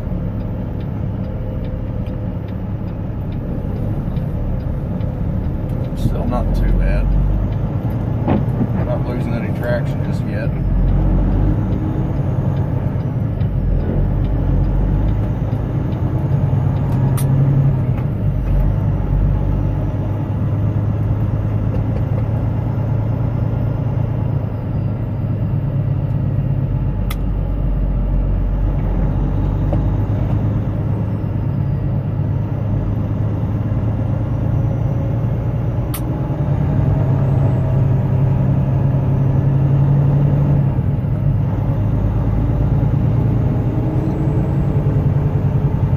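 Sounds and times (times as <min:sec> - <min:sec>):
truck engine and road noise: 0:00.0 - 0:45.9
sharp ticks: 0:00.2 - 0:08.0.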